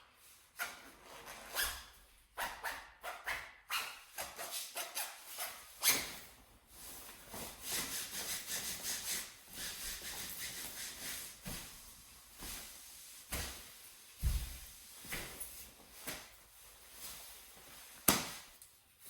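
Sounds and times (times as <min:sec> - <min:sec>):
fabric rubbing and swishing: 0:04.4 - 0:18.4.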